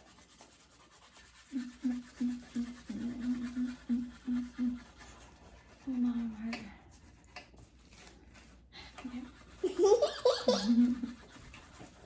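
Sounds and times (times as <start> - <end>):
person humming: 1.6 - 4.8.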